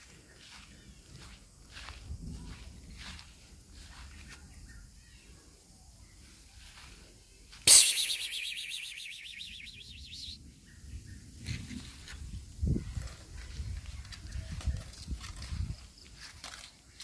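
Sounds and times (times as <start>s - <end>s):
bird warbling trill: 7.7s - 10.4s.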